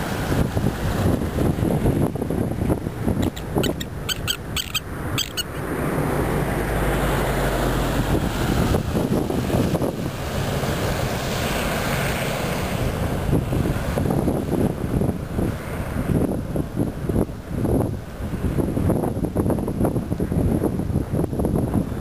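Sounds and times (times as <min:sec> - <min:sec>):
wind buffeting microphone: 0:00.0 - 0:22.0
high piping bird calls: 0:03.2 - 0:05.6.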